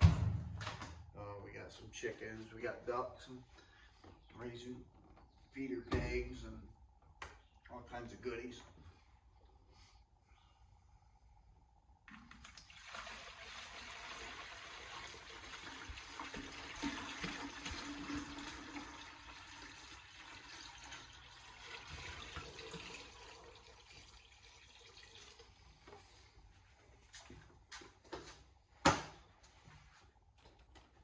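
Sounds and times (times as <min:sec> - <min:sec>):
water pouring into container: 0:12.1 - 0:25.7.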